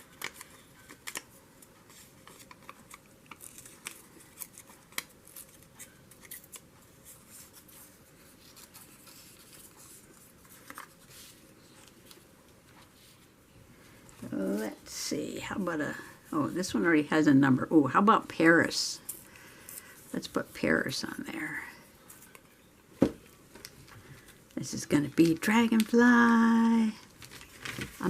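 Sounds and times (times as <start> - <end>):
paper rustling: 0.0 - 13.4, 25.0 - 28.0.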